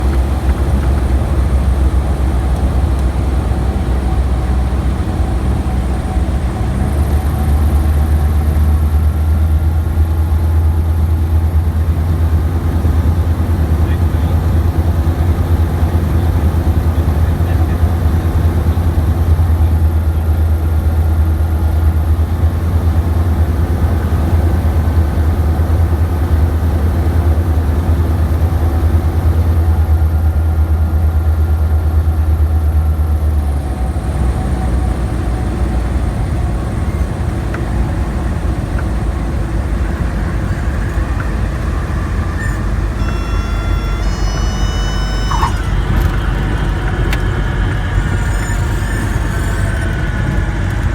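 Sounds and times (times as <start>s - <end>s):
airplane engine droning: 0.0s - 32.4s, 33.4s - 50.9s
high whistling tones: 40.3s - 50.5s.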